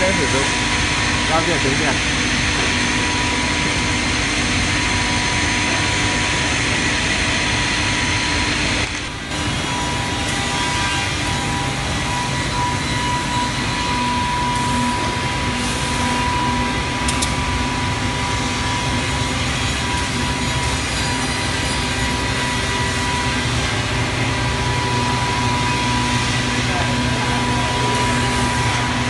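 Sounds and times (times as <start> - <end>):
pulsing hum: 0.0 - 29.0
sharp click: 17.0 - 17.4.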